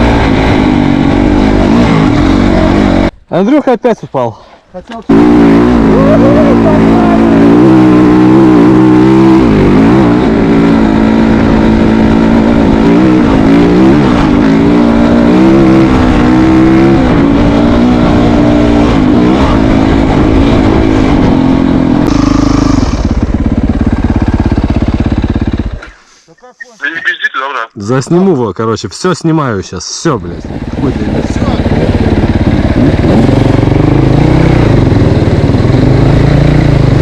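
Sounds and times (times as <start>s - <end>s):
motorcycle engine revving: 0.0s - 3.2s, 5.0s - 26.0s, 30.1s - 37.0s.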